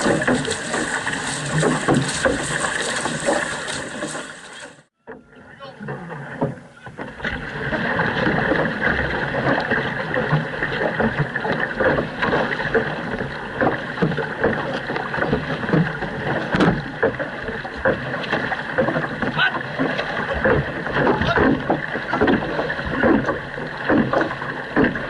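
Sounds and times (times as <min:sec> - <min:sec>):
paddle blades splashing: 0:00.0 - 0:25.0
water rushing along hull: 0:00.0 - 0:25.0.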